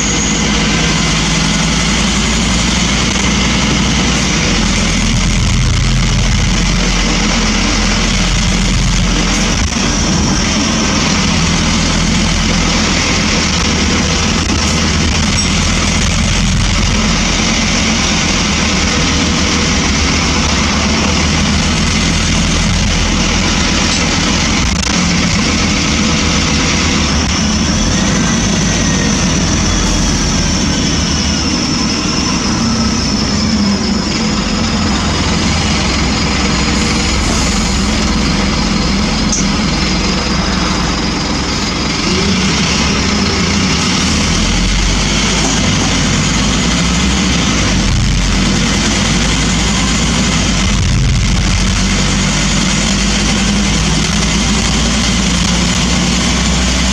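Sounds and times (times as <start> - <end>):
bus diesel engine running: 0.0 - 56.9
road noise: 0.0 - 56.9.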